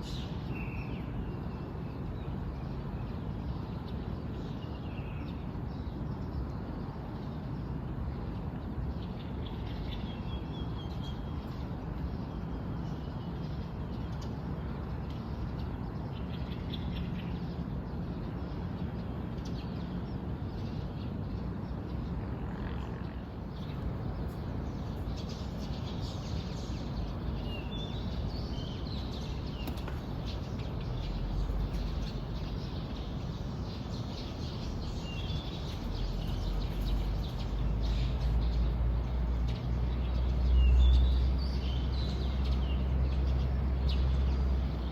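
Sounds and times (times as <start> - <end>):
steady outdoor hiss: 0.0 - 44.9
small birds chirping: 23.0 - 44.9.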